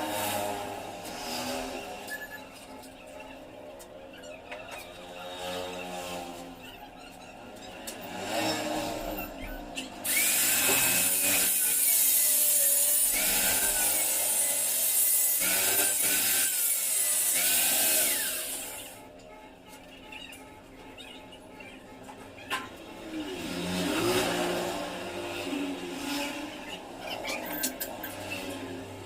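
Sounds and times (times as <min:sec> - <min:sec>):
rasping sawing strokes: 0:10.0 - 0:29.0.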